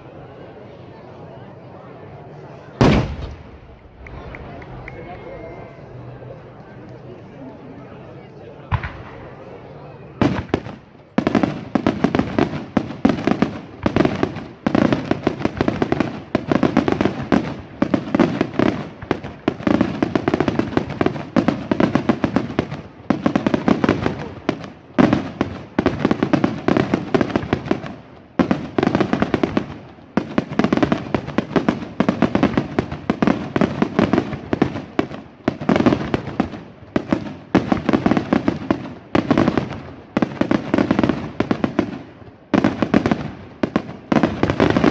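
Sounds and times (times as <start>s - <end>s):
aerial fireworks barrage: 2.8s - 4.9s, 8.7s - 44.9s.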